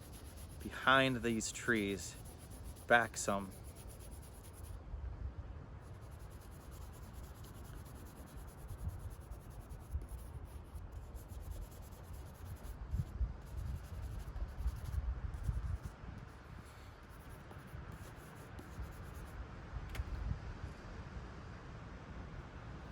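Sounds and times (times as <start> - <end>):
drawing tool scratching on paper: 0.0 - 4.7, 5.9 - 15.9, 17.0 - 19.3.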